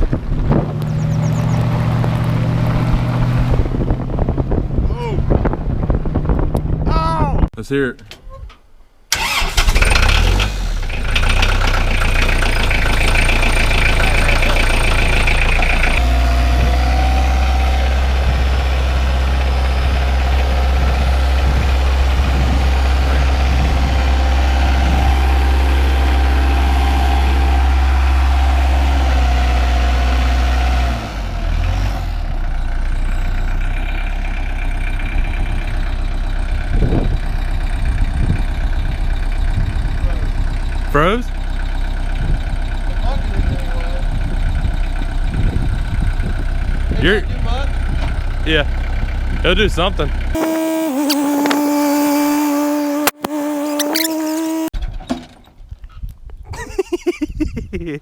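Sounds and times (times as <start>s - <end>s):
vehicle engine idling: 9.1s - 29.0s, 32.2s - 54.7s.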